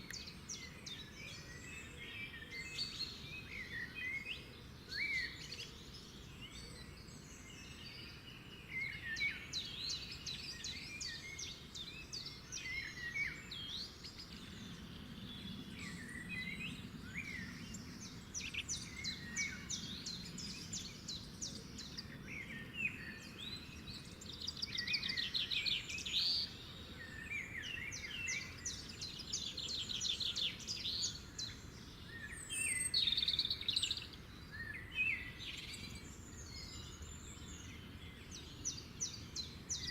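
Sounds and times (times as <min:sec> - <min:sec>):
birds singing: 0:00.0 - 0:39.9
faint low background noise: 0:00.0 - 0:39.9.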